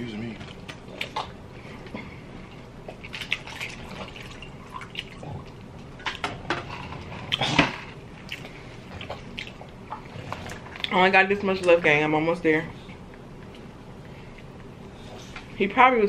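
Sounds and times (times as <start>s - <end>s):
wet chewing and lip-smacking: 8.2s - 11.0s.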